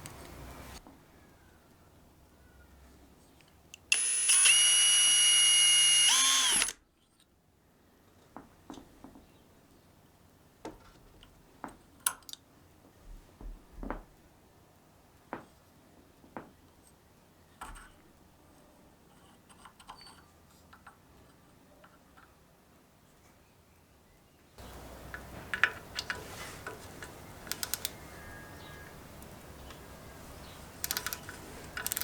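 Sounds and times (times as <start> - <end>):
metal parts and tools clinking: 30.8 - 32.0.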